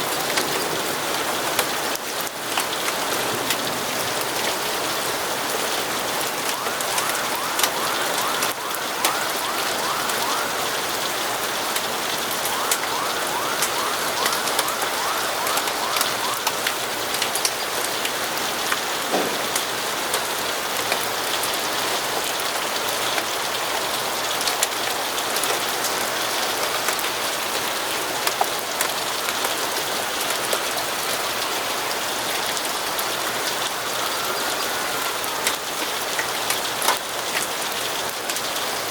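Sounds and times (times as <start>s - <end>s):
rain on windows: 0.0s - 38.9s.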